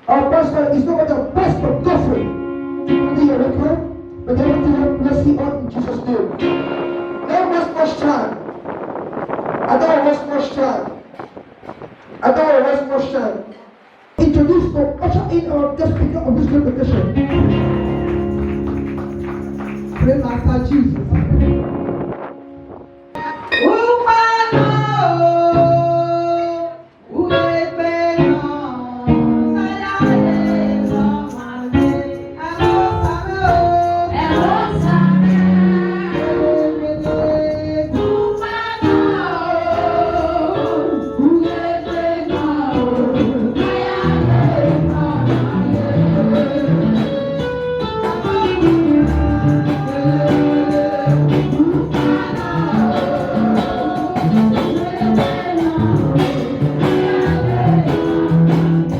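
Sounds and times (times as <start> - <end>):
instrumental backing: 0.0 - 9.8, 13.5 - 58.9
gospel singing: 17.1 - 20.8, 23.2 - 58.9.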